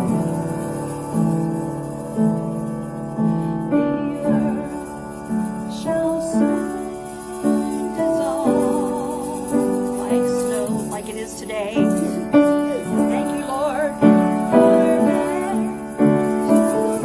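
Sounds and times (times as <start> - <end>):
piano chords: 0.0 - 17.0
woman singing a hymn: 3.4 - 17.0.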